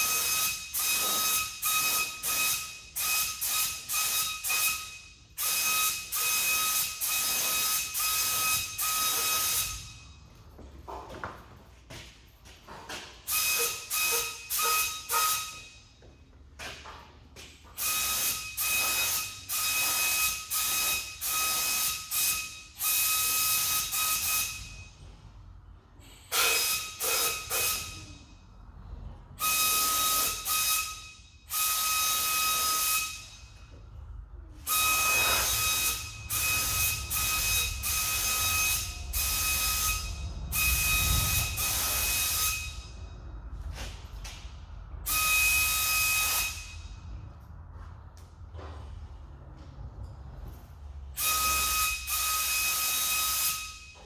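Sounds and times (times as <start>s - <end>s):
whistle in air stream: 0.0s - 10.2s, 13.3s - 15.9s, 17.8s - 25.0s, 26.0s - 28.2s, 29.4s - 33.7s, 34.6s - 43.8s, 45.0s - 47.1s, 51.2s - 54.0s.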